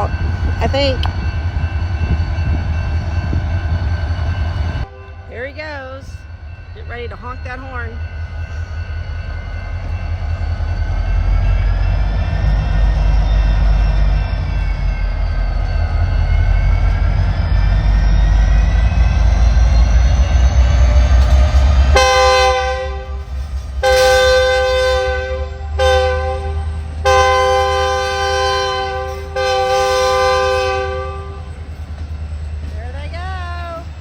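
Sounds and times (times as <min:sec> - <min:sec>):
diesel locomotive engine: 0:00.0 - 0:34.0
train air horn blasts: 0:04.8 - 0:05.5, 0:21.9 - 0:31.5.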